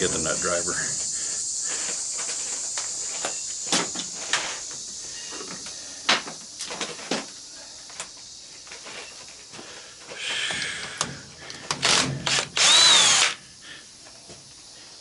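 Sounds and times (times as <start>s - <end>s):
power drill whining: 10.6s - 13.4s.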